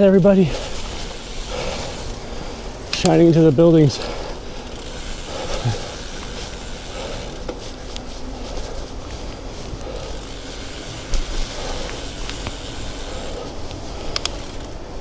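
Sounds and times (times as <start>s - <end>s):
bicycle tyre noise: 0.0s - 15.0s
faint ticks: 4.0s - 8.1s, 9.2s - 14.8s.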